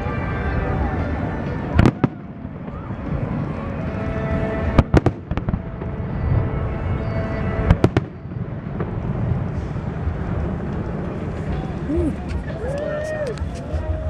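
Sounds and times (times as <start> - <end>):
fireworks rumbling and crackling: 7.9 - 14.0.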